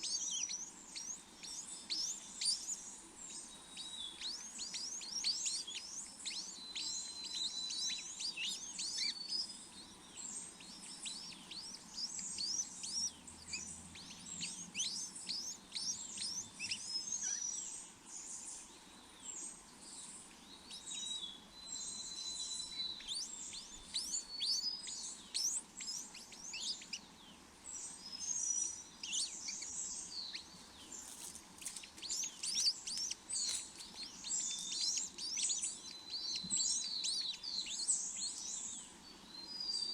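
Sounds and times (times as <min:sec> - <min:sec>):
birds chirping: 0:00.0 - 0:39.9
whistled bird notes: 0:20.6 - 0:27.0, 0:27.7 - 0:39.9.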